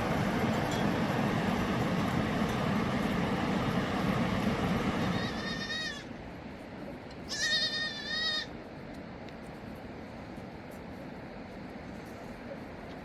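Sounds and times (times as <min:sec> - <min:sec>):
steady rushing noise: 0:00.0 - 0:05.4
lamb bleating: 0:05.2 - 0:06.0, 0:07.3 - 0:08.5.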